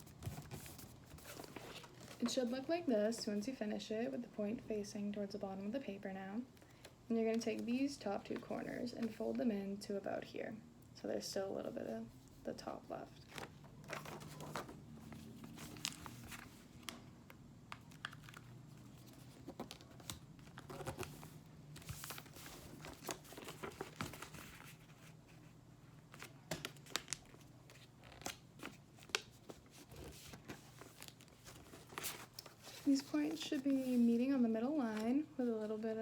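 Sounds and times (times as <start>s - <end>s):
paper rustling and crinkling: 0.0s - 2.7s, 13.2s - 17.1s, 17.7s - 34.2s.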